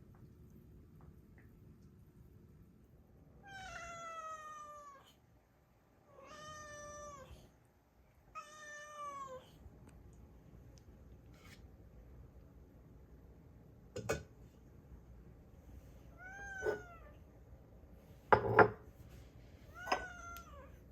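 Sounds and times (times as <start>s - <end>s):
cat meowing: 3.4s - 5.2s, 6.1s - 7.4s, 8.3s - 9.5s, 16.2s - 17.1s, 19.8s - 20.8s.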